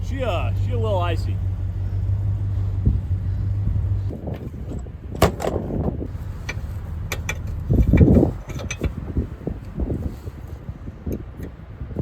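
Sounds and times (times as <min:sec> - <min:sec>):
rumbling scrape: 0:00.0 - 0:10.7
truck engine hum: 0:00.0 - 0:12.0
sharp knocks and clunks: 0:04.3 - 0:09.0.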